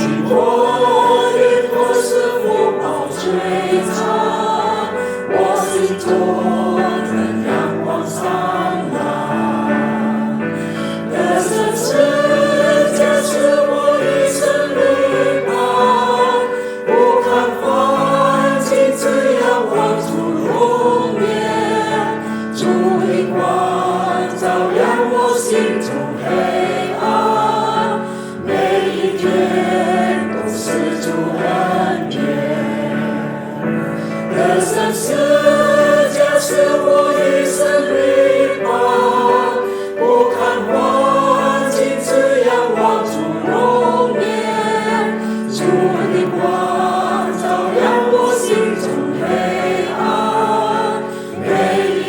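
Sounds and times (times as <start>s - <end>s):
choir singing a hymn: 0.0s - 52.0s.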